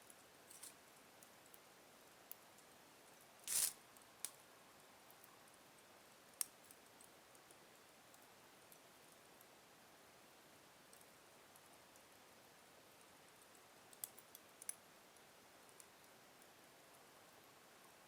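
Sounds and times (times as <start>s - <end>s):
quiet hiss: 0.0s - 18.0s
wood fire crackling: 3.4s - 4.3s.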